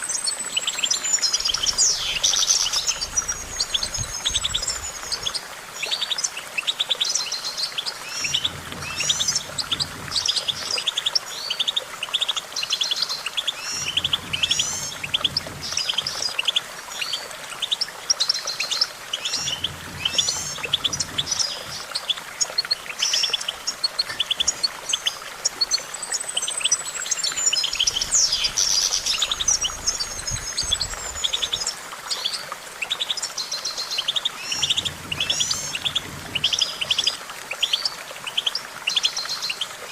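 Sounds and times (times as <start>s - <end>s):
finch singing high twittering: 0.6s - 5.4s, 8.0s - 11.6s, 13.6s - 32.4s, 34.4s - 37.9s.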